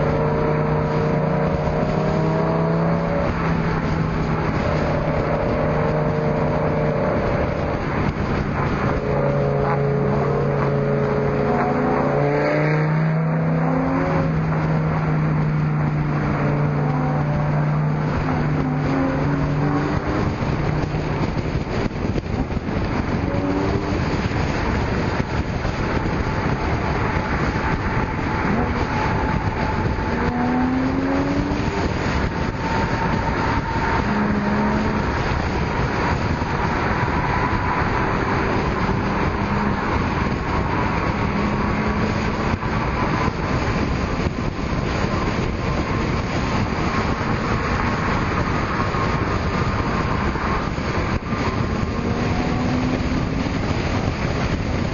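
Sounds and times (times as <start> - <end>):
cars driving by: 0.0 - 54.9.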